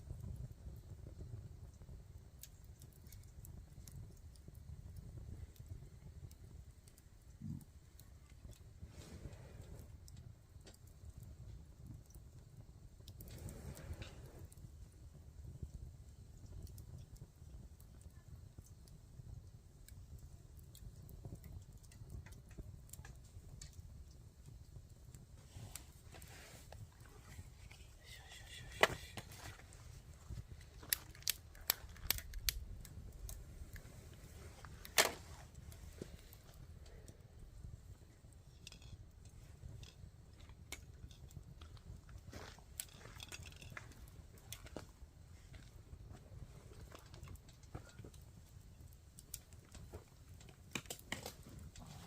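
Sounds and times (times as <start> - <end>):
campfire crackling: 0.0 - 52.0
low steady rumble: 25.3 - 41.0.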